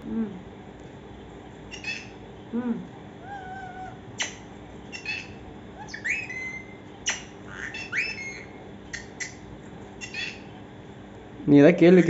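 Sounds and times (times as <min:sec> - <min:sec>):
parrot squawking and chirping: 0:01.7 - 0:02.2, 0:03.2 - 0:10.6
rising whistled calls: 0:03.4 - 0:09.4.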